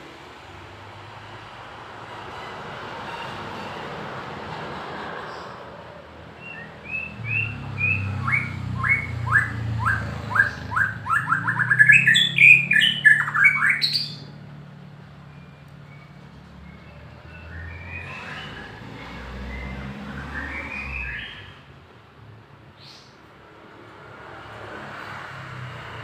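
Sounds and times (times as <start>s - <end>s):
songbird singing: 6.4s - 21.7s.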